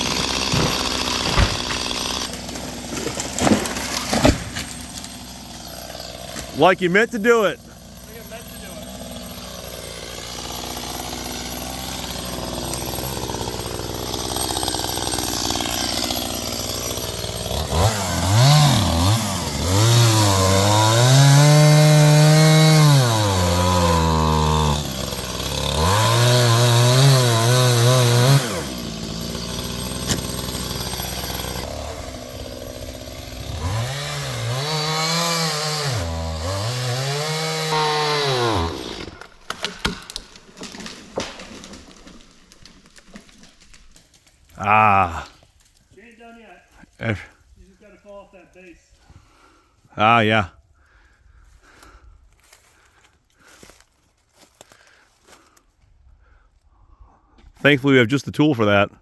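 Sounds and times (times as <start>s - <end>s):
chainsaw cutting wood: 0.0s - 46.2s.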